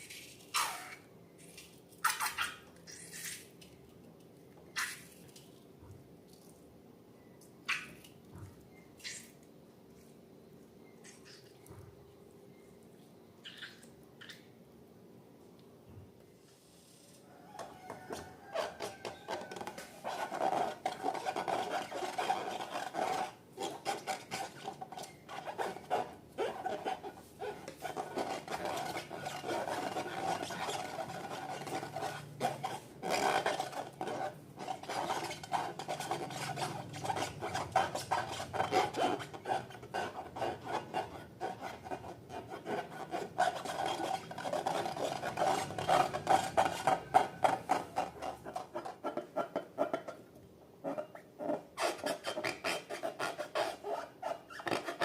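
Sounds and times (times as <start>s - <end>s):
slime rubbing and rasping: 18.1s - 49.9s, 51.1s - 55.0s.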